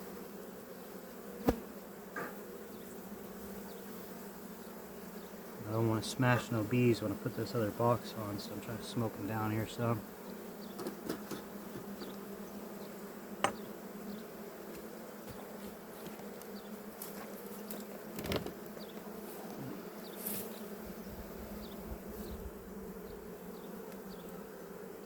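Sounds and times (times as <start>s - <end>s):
honey bees buzzing: 0.0s - 25.0s
brief knock: 13.4s - 13.6s.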